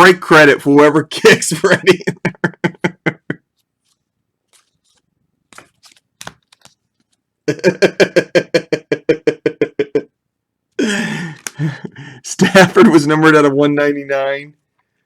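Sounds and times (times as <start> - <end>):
man laughing: 1.2 - 3.5, 7.5 - 10.1, 10.8 - 13.1
cards being handled: 3.6 - 7.3, 11.3 - 11.6.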